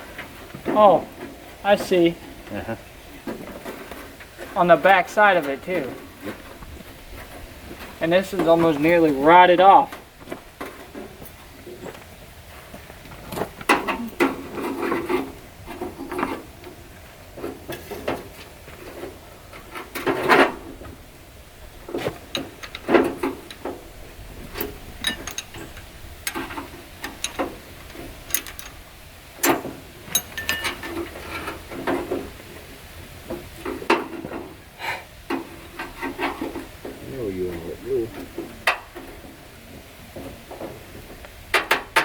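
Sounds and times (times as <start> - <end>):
metal knocks and clanks: 21.7 - 28.8, 29.4 - 32.4.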